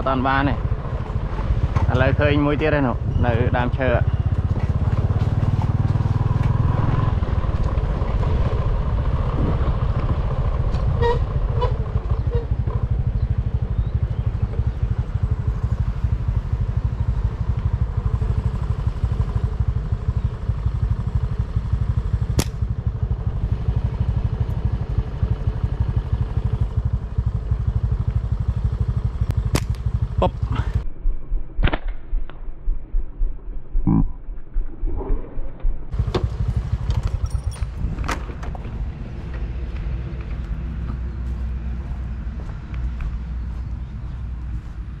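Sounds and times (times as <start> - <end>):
small engine running: 3.9 - 30.8, 35.9 - 40.3
sharp crack: 22.3 - 22.7, 29.3 - 30.0, 31.6 - 32.5.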